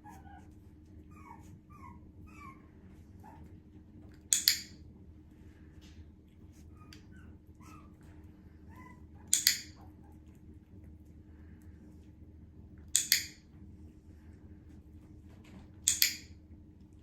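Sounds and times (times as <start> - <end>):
puppy whimpering: 0.0 - 3.5, 6.6 - 10.3
training clicker clicks: 4.3 - 4.7, 9.3 - 9.7, 13.0 - 13.4, 15.9 - 16.3.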